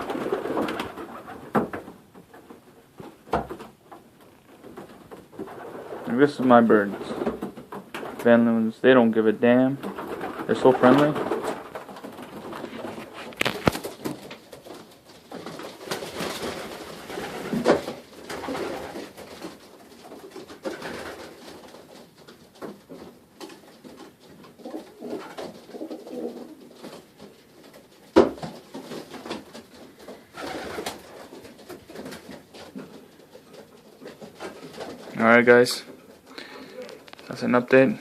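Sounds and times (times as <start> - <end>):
clicks and rustles: 0.0 - 8.6, 9.8 - 38.0
pigeons cooing: 24.5 - 27.0, 30.1 - 31.6, 36.2 - 37.1.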